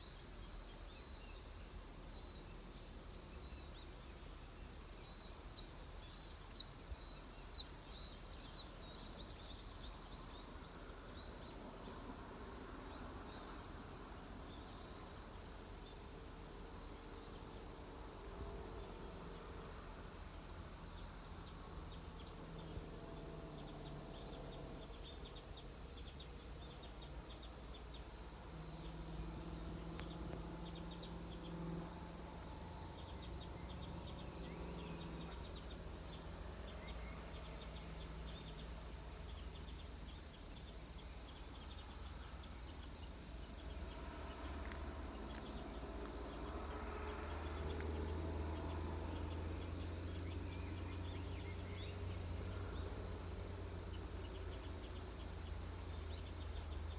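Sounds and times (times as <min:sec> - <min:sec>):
insects chirping: 0:00.0 - 0:56.9
bird chirps: 0:33.0 - 0:56.9.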